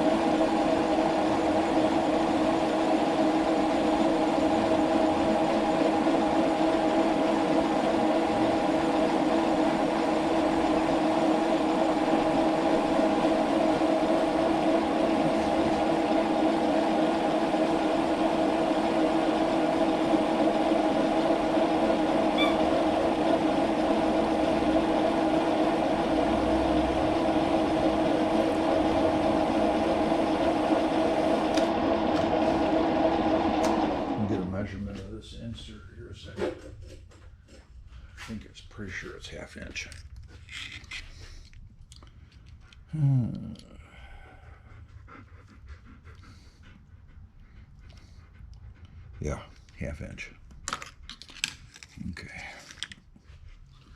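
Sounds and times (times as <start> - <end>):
metal lathe humming: 0.0 - 34.7
lathe winding down: 0.0 - 35.1.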